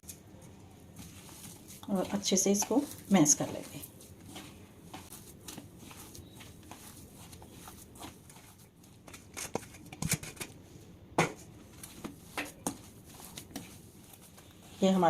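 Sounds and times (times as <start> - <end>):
food squishing in bowl: 0.4 - 10.4, 11.4 - 15.0.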